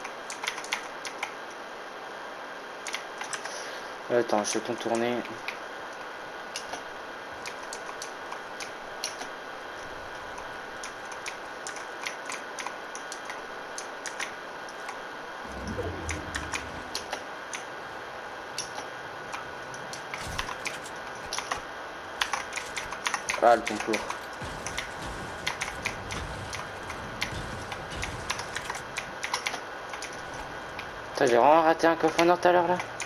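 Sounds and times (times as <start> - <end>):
brief low rumble: 15.4 - 18.0.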